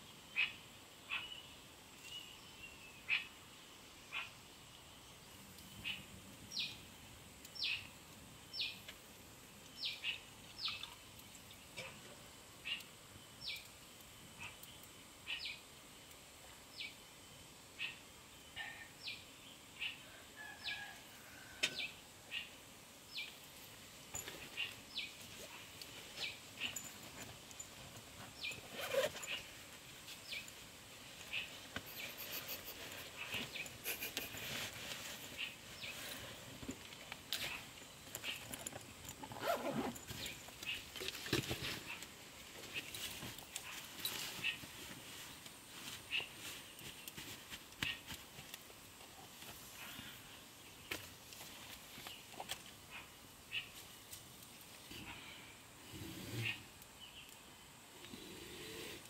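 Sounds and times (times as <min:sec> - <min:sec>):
small bird chirping: 0:09.7 - 0:12.0.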